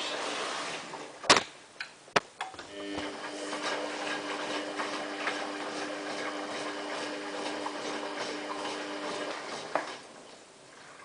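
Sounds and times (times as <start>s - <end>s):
washing machine motor humming: 2.5s - 10.6s.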